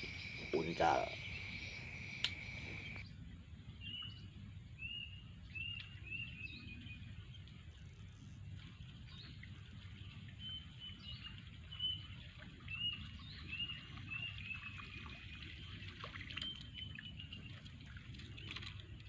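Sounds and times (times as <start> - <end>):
high whistled bird calls: 0.0 - 3.0
steady low rumble: 0.0 - 8.9.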